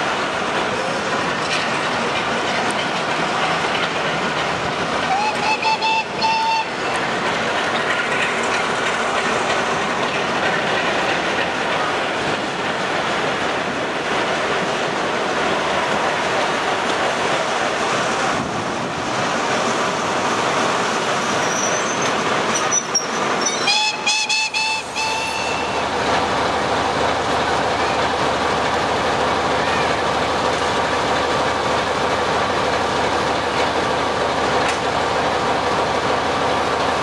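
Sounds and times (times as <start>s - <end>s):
train wheels rumbling and rattling: 0.0s - 37.0s
high wheel squeals: 21.4s - 25.8s.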